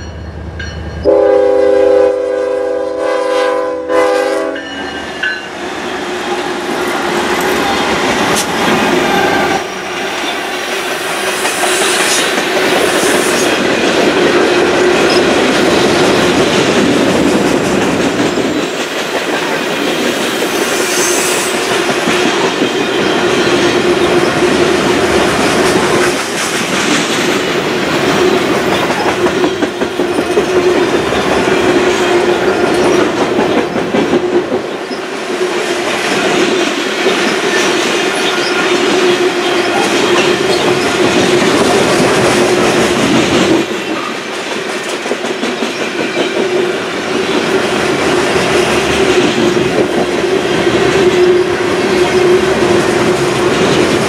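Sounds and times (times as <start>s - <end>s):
freight train wheels clattering: 4.6s - 54.0s.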